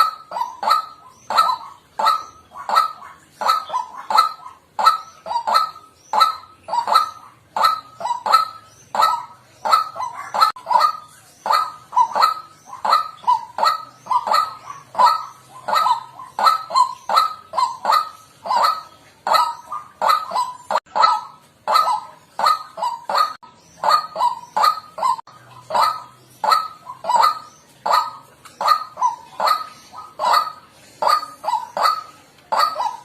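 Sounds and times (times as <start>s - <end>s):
bird croaking calls: 0.0s - 33.0s.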